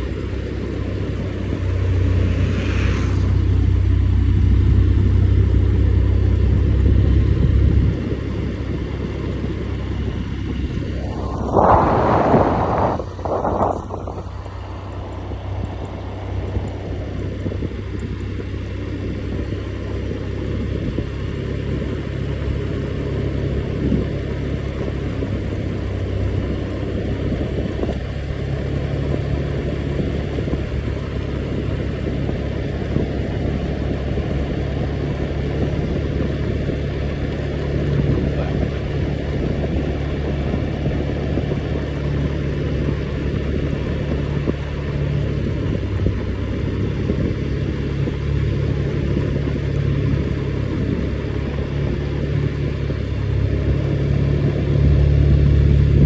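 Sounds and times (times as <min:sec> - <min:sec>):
rushing noise: 0:00.0 - 0:06.4, 0:09.3 - 0:18.2
engine humming: 0:00.0 - 0:56.0.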